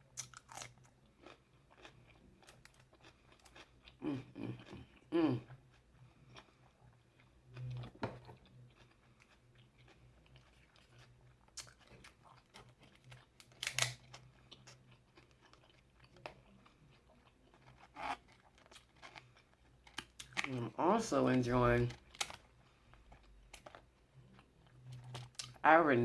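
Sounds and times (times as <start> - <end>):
food crunches: 0.1 - 5.0, 7.2 - 20.6, 21.9 - 25.6
person chewing with lip smacks: 0.1 - 20.6.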